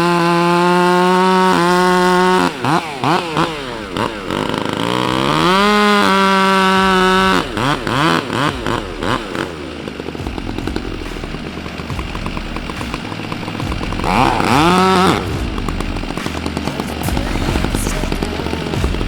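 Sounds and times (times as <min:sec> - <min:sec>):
chainsaw revving: 0:00.0 - 0:19.0.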